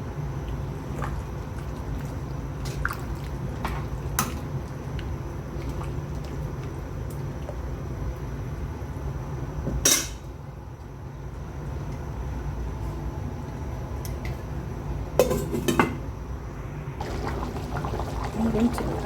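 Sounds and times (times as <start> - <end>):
low hum: 16.1 - 19.0.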